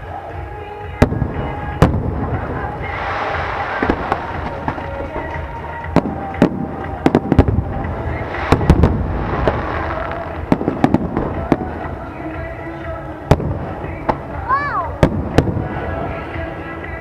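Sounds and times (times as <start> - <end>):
firework shells bursting: 1.1 - 12.0.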